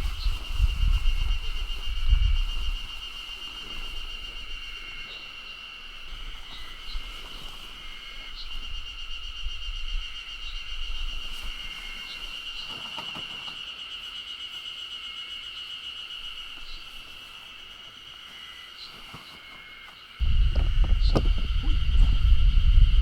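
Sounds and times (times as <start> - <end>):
wind buffeting microphone: 0.0 - 4.9, 20.2 - 23.0
insects trilling: 0.0 - 23.0.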